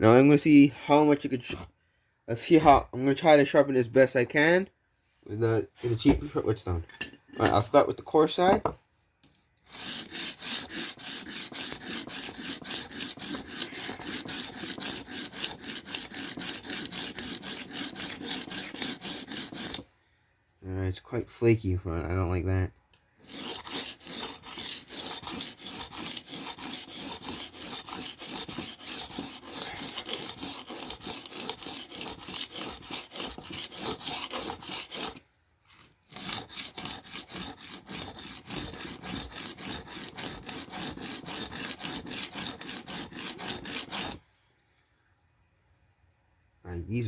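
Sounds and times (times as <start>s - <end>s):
knife scraping on whetstone: 9.6s - 19.8s, 23.2s - 44.2s.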